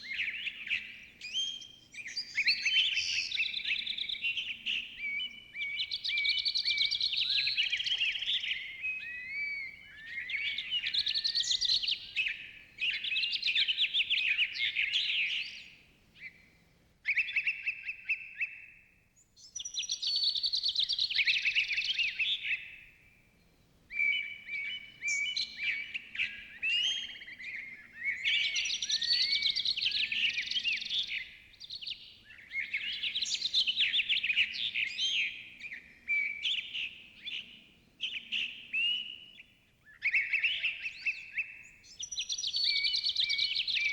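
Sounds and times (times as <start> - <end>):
songbirds chirping and warbling: 0.0 - 43.9.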